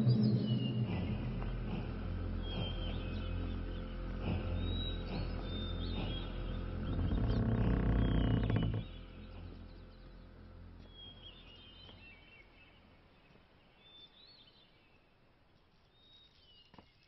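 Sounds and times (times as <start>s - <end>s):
film music: 0.0s - 11.9s
faint outdoor ambience: 0.0s - 17.0s.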